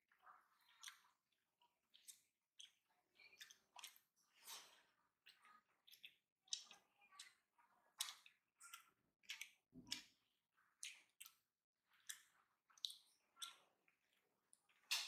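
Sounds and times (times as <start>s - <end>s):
chewing with wet clicks: 0.1s - 15.0s
lip smacks: 0.6s - 1.2s, 1.9s - 7.3s, 10.8s - 13.7s.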